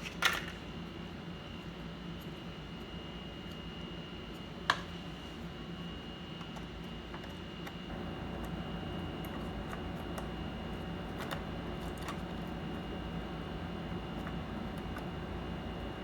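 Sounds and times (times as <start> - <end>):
steady low hum: 7.9 - 16.0.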